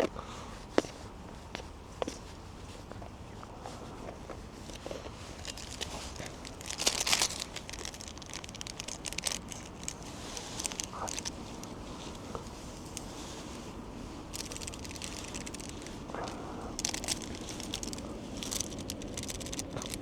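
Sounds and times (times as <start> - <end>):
plastic packaging crinkling: 4.7 - 20.0.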